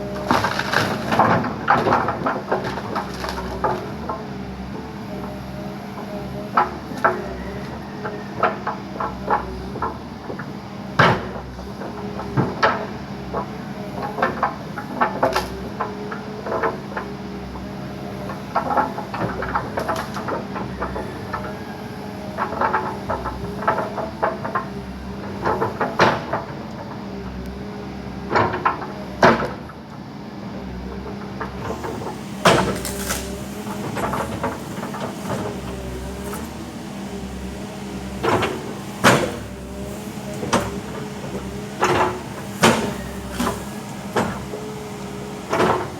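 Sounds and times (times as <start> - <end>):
backhoe diesel engine running: 0.0 - 45.9
tree breaking with sharp knocks: 31.7 - 36.6, 37.2 - 44.9.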